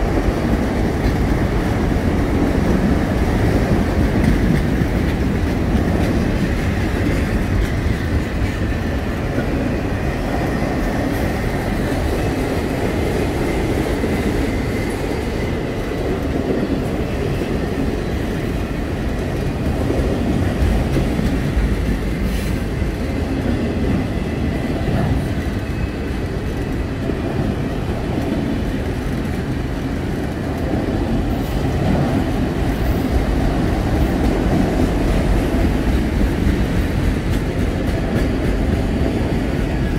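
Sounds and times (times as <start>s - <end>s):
freight train wheels rumbling on rail: 0.0s - 39.9s.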